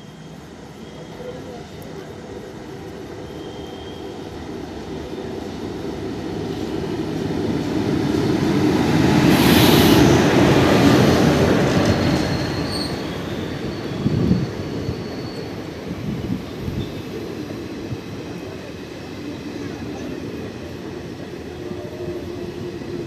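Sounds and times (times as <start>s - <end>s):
locomotive hiss: 0.0s - 23.0s
train rolling past: 0.0s - 23.0s
high wheel squeal: 3.1s - 4.4s, 11.4s - 17.2s.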